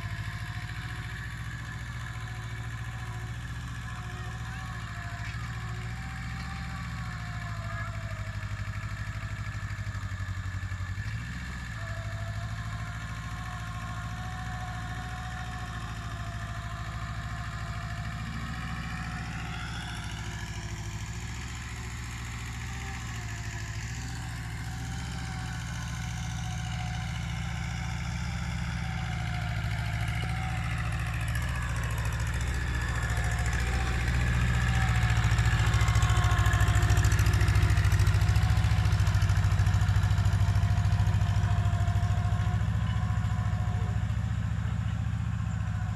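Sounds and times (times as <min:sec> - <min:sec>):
mini tractor engine running: 0:00.0 - 0:45.9.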